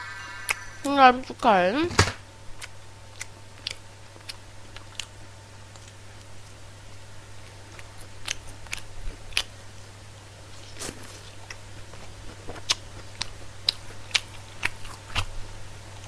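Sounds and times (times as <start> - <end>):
steady low hum: 0.0 - 10.7
crisp chewing crunches: 2.6 - 9.6, 10.6 - 15.5.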